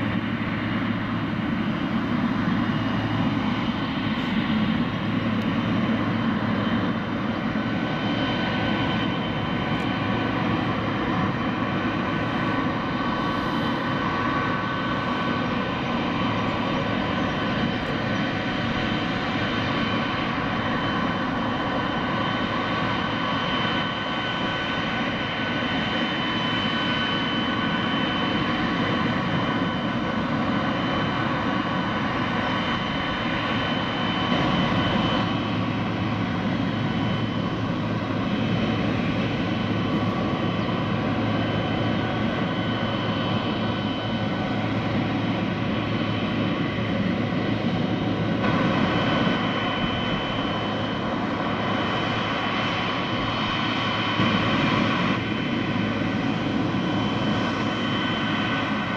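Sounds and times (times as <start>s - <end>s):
high turbine whine: 0.0s - 58.9s
jet engine rumble: 0.0s - 58.9s.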